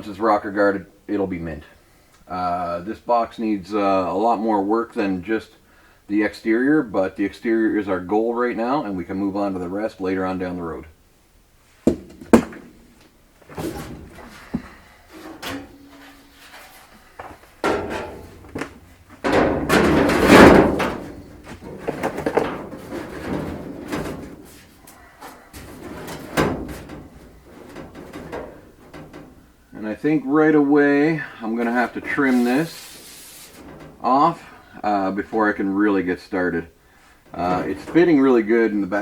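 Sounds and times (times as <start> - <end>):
sheet metal knocks and clunks: 11.9 - 16.4, 17.2 - 29.7, 31.6 - 34.4, 37.2 - 38.6
metal panel scraping: 12.4 - 30.2, 30.8 - 35.6, 37.1 - 39.0.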